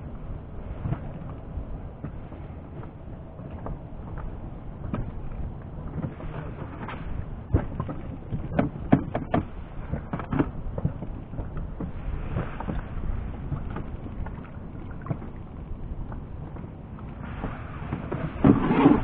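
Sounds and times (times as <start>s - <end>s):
wind rumbling on microphone: 0.0s - 19.0s
sharp clicks and knocks: 6.8s - 11.6s.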